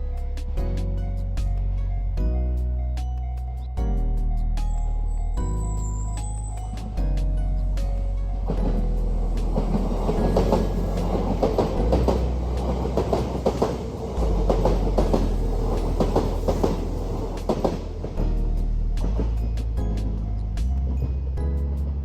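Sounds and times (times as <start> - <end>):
train wheels clacking over rail joints: 8.0 - 21.2.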